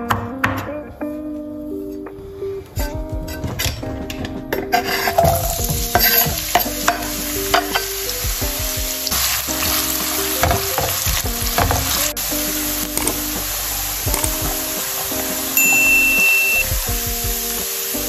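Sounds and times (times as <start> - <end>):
soft background music: 0.0 - 18.0
spatula stirring in pan: 4.7 - 8.2, 8.9 - 16.0
onion sizzling in hot oil: 4.8 - 18.0.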